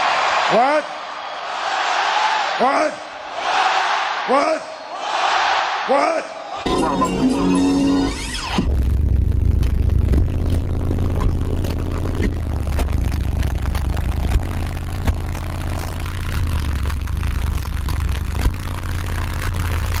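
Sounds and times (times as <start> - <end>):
deep bass from subwoofers: 6.7 - 20.0
vehicle rattling and clicking: 9.6 - 20.0.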